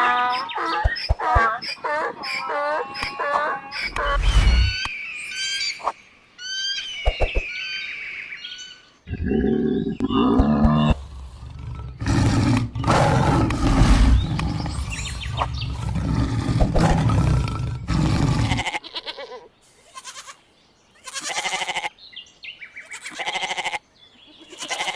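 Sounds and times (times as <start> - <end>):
loud low animal calls: 0.0 - 4.9, 9.1 - 18.8
short bird chirps: 3.7 - 8.8.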